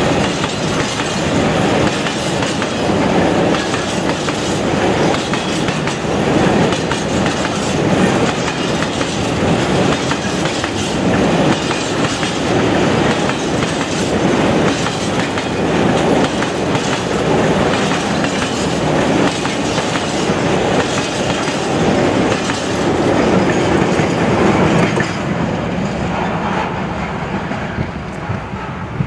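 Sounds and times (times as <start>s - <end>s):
freight train rolling past: 0.0s - 29.0s.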